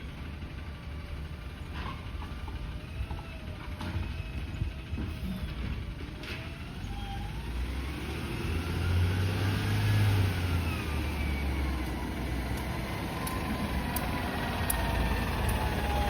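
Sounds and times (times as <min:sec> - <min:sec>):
truck engine revving: 0:06.4 - 0:16.0.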